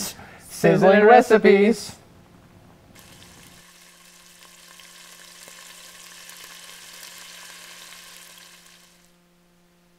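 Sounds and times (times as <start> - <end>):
food sizzling in a pan: 3.0 - 9.1.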